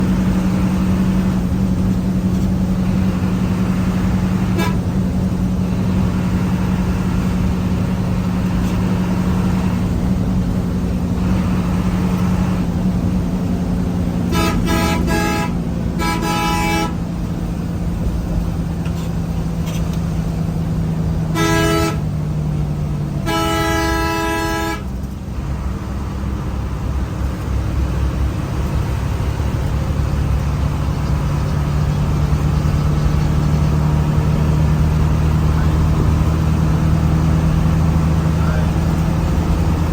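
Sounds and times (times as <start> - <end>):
vehicle engine droning: 0.0 - 39.9
vehicle horns honking: 3.9 - 5.1, 14.1 - 17.2, 21.2 - 22.2, 23.1 - 25.0.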